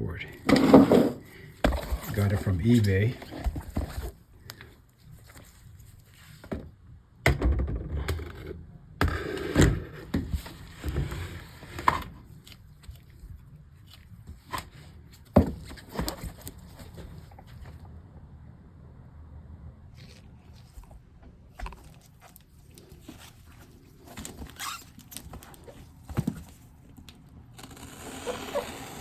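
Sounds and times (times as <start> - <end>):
packaging scraping and rustling: 0.4 - 6.4, 21.6 - 29.0
package knocks and thuds: 15.3 - 16.6.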